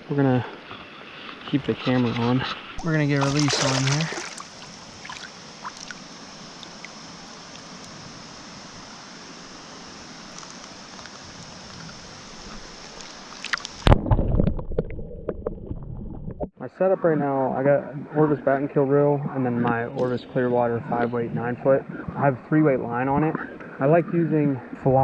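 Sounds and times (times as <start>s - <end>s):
stream water rushing: 2.0s - 14.0s
loud splashing and thumping: 2.8s - 5.2s, 13.8s - 14.9s
faint ticks: 10.3s - 13.8s.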